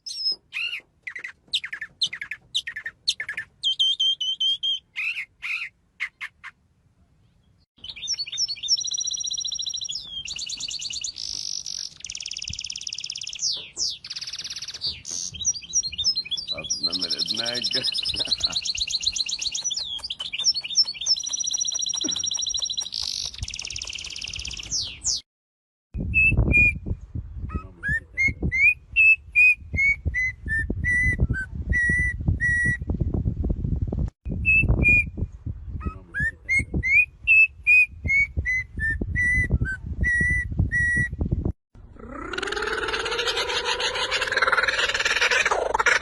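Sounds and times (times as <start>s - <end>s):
songbird warbling trill: 7.8s - 25.2s.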